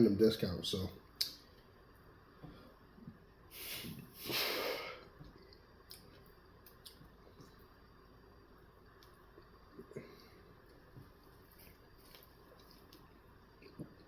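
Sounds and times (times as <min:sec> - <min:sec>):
person breathing hard through nose: 0:03.5 - 0:05.1.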